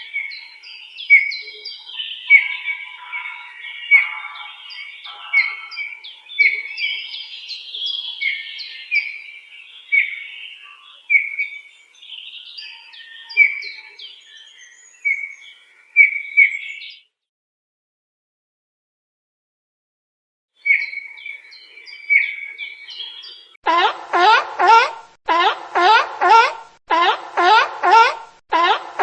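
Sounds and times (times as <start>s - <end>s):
birds chirping: 0.0s - 17.0s, 20.6s - 29.0s.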